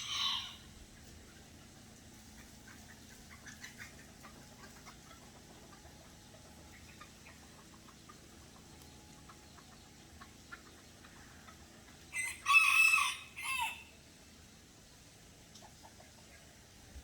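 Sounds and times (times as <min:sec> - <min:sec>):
rooster crowing: 0:00.0 - 0:00.8, 0:12.1 - 0:13.9.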